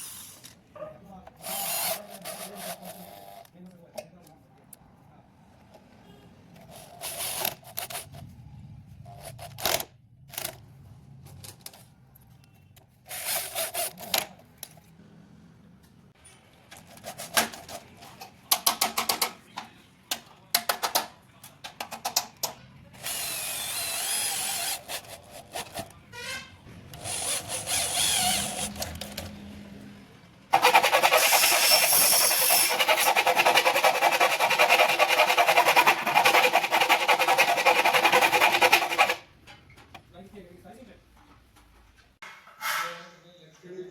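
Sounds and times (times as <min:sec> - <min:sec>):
power drill driving screws: 0:23.0 - 0:25.0, 0:27.0 - 0:29.0, 0:30.6 - 0:33.0.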